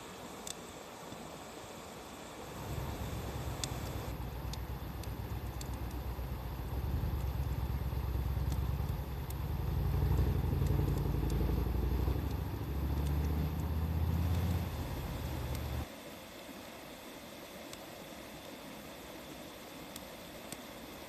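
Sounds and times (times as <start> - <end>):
wood fire crackling: 2.4 - 15.9.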